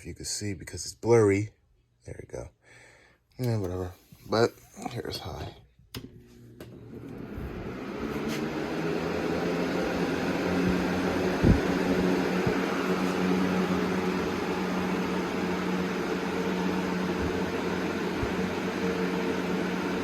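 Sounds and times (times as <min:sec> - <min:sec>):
box fan running: 0:03.5 - 0:20.0.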